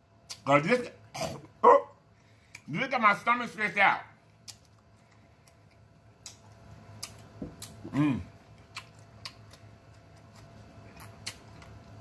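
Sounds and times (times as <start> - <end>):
man chewing with lip smacks: 0.2 - 0.5, 2.4 - 2.7, 4.4 - 12.0
man humming: 7.8 - 8.4.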